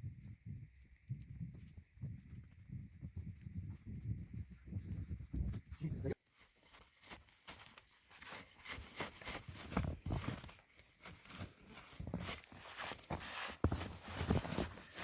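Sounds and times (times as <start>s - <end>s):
footsteps crunching in snow: 6.2s - 15.0s.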